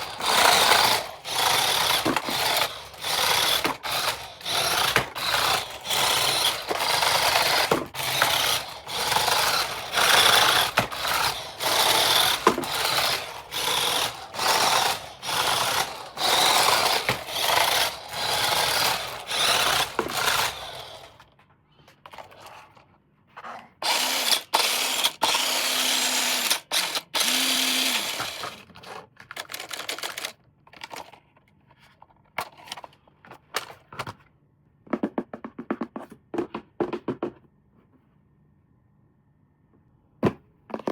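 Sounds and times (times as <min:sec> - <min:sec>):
small electric motor whirring: 0:00.0 - 0:21.2, 0:23.8 - 0:28.7.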